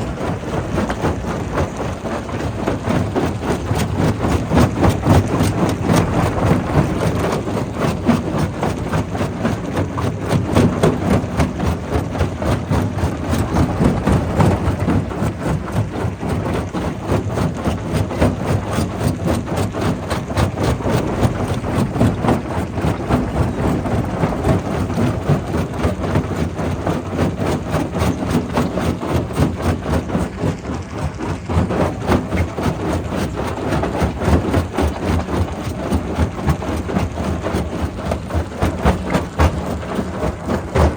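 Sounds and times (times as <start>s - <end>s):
rock crusher droning: 0.0s - 28.6s.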